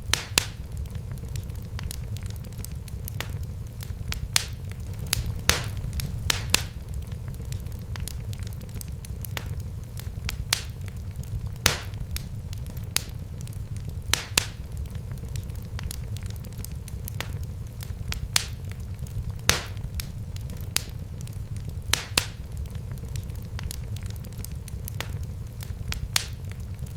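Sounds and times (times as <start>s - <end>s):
wood fire crackling: 0.0s - 26.9s.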